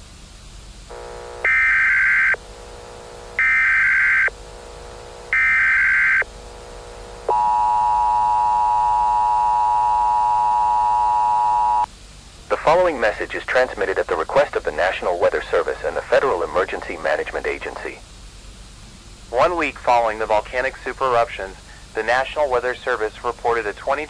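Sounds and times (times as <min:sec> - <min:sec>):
low buzz: 0:00.9 - 0:11.9
data bursts: 0:01.0 - 0:02.4, 0:03.4 - 0:04.4, 0:05.3 - 0:06.3, 0:07.3 - 0:11.9
two-tone attention signal: 0:07.3 - 0:11.9.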